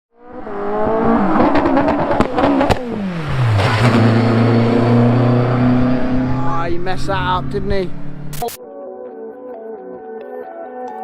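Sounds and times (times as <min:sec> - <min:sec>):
racing car engine revving: 0:00.2 - 0:08.4.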